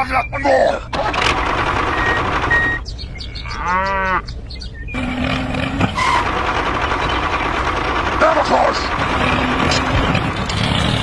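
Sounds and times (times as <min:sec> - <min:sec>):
animal mooing: 0:03.4 - 0:04.3, 0:05.0 - 0:06.7
noisy background: 0:04.4 - 0:11.0.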